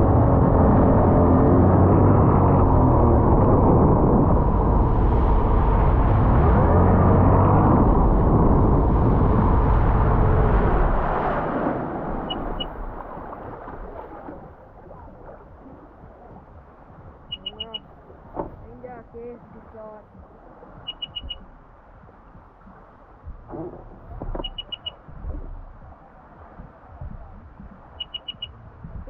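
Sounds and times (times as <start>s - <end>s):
jet ski engine rumble: 0.0s - 29.0s
rushing water: 0.0s - 29.0s
short high beeps: 12.2s - 12.7s, 17.3s - 17.8s, 20.9s - 21.4s, 24.4s - 25.0s, 28.0s - 28.5s.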